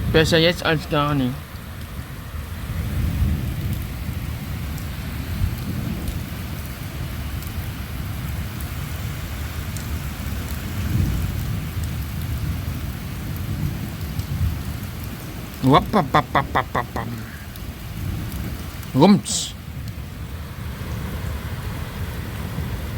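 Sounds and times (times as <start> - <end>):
steady rain: 0.0 - 22.9
low rumble of thunder: 1.5 - 8.5, 10.6 - 15.5.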